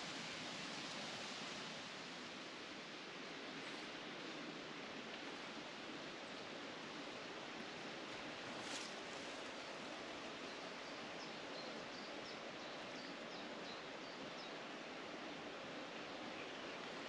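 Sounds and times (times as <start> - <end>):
outdoor rustling: 8.1 - 10.0.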